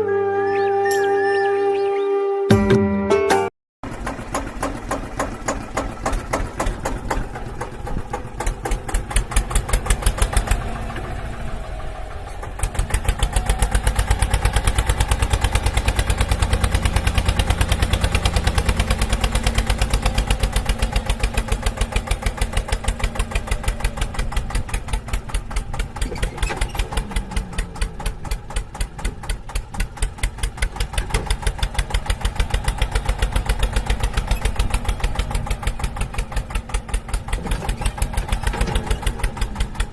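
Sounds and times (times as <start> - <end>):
tractor engine idling: 3.8 - 39.9.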